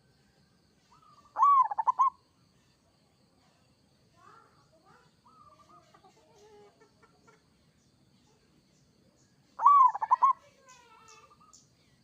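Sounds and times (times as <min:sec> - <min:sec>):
faint bird calls: 0:00.8 - 0:02.8, 0:04.8 - 0:07.4, 0:09.6 - 0:11.7
dove cooing: 0:00.9 - 0:02.2, 0:09.6 - 0:10.4.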